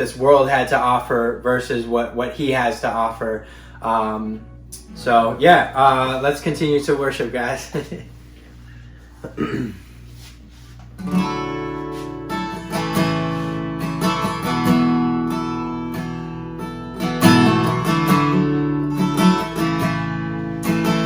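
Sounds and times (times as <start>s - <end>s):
acoustic guitar strumming chords: 2.4s - 8.6s, 9.3s - 21.0s.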